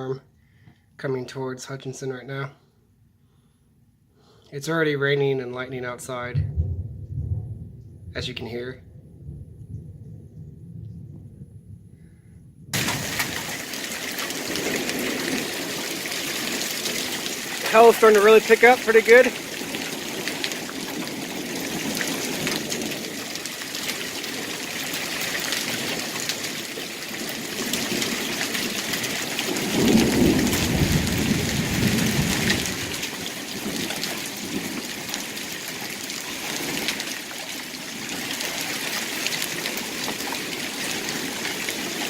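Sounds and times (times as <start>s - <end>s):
rumble of thunder: 6.2s - 16.6s, 29.4s - 34.9s
heavy rain and hail: 12.7s - 42.0s.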